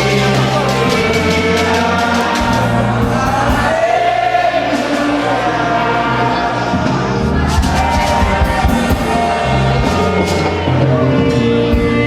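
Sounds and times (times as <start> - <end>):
drum or cymbal hits: 0.0 - 5.3, 7.5 - 12.0
bass line: 0.0 - 12.0
people singing gospel: 0.0 - 12.0.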